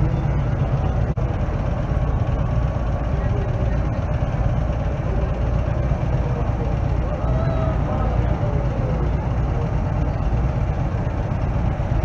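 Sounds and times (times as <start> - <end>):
faint voices: 0.0 - 11.8
car engines rumbling: 0.0 - 12.0.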